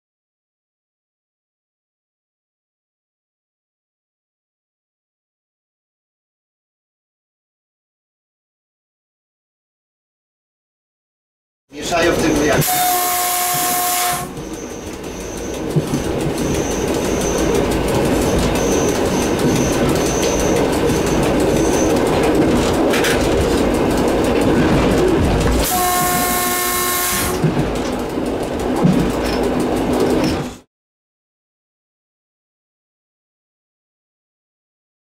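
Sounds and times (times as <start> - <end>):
train rumble with rail clicks: 11.7 - 30.7
train horn: 12.6 - 14.6, 25.6 - 27.6
short high beeps: 12.6 - 15.6, 16.4 - 21.9.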